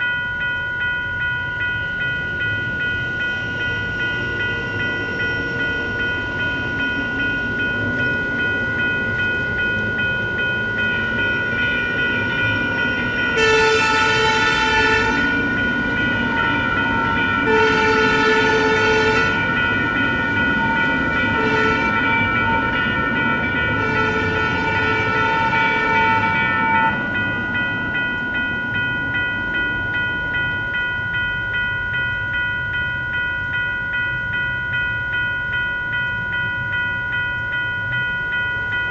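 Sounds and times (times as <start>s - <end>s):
railroad crossing bell ringing: 0.0s - 38.9s
train horn blasts: 13.4s - 15.5s, 17.4s - 19.5s, 21.3s - 22.1s, 23.8s - 27.0s.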